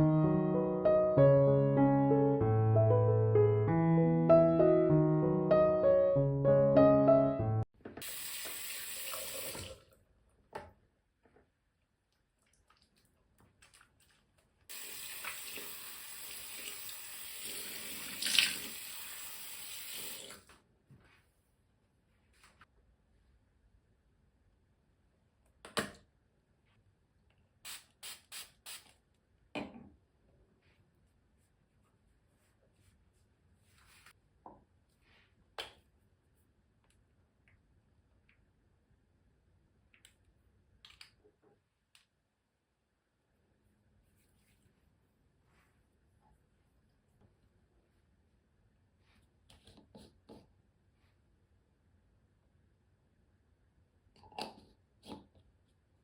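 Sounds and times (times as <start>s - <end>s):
tap water running into sink: 8.0s - 9.8s, 14.7s - 20.5s
water splash: 17.6s - 18.8s
soft rustle: 20.9s - 22.8s, 30.6s - 34.2s, 43.7s - 47.2s.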